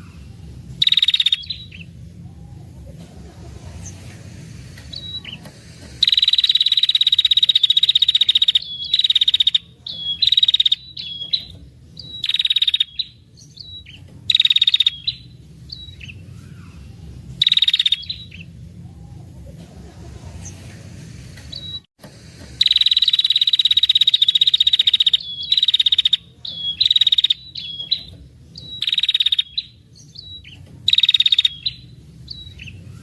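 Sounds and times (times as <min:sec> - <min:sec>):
bird chattering trill: 0:00.8 - 0:04.3, 0:04.9 - 0:19.4, 0:22.6 - 0:33.0.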